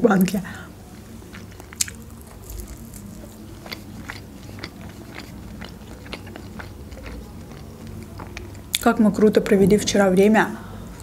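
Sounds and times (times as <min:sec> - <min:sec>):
chewing crunchy toast: 0:00.8 - 0:09.6.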